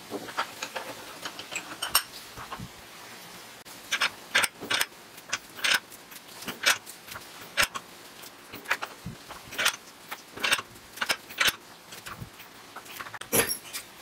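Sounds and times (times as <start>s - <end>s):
steel clinking and scraping on steel: 0.1s - 2.6s, 3.9s - 7.8s, 8.5s - 14.0s.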